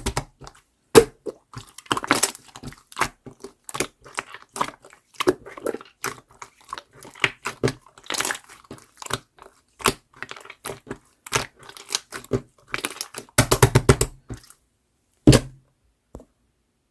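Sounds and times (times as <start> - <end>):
slime popping and crackling: 0.0 - 14.5.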